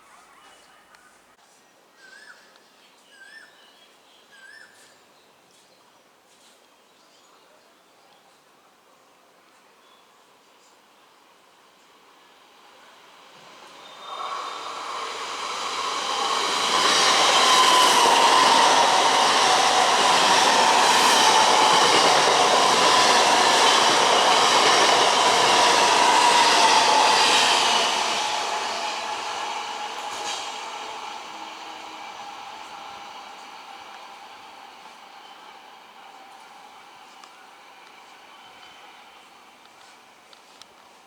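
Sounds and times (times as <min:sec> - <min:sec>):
train passing at speed: 0:11.2 - 0:40.6.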